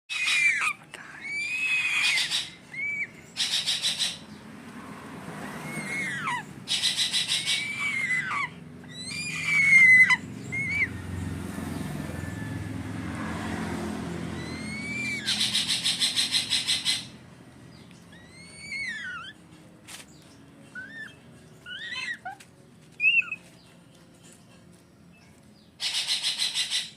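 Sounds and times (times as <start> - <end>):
eagle chick whistled calls: 5.6 - 11.0, 14.4 - 17.1, 25.8 - 26.9.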